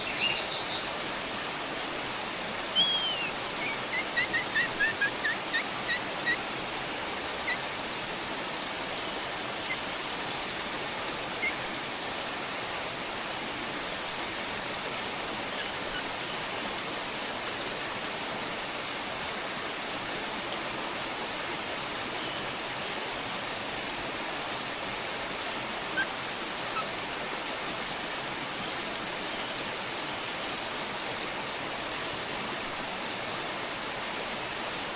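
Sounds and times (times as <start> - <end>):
small bird chirping: 2.8 - 17.8, 26.0 - 27.2.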